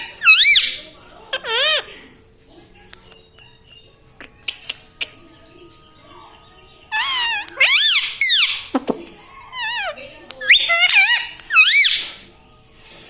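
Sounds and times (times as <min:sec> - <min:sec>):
parrot squawking: 0:00.0 - 0:02.0, 0:06.9 - 0:12.2.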